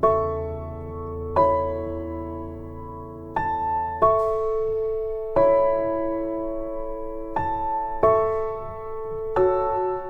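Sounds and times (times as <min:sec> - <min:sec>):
slow piano chords: 0:00.0 - 0:10.0.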